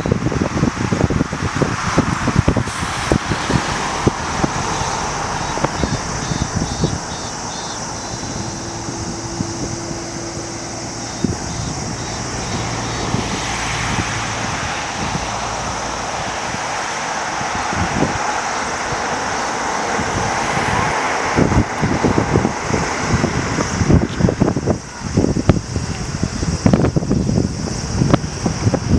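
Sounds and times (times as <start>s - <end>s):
distant jet engines rumbling: 0.0s - 28.9s
wind buffeting microphone: 0.0s - 28.9s.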